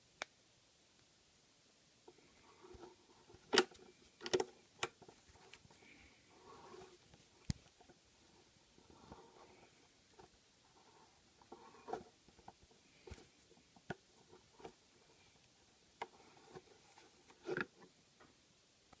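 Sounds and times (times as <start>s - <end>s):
clicks and knocks of parts handled: 2.7s - 5.7s.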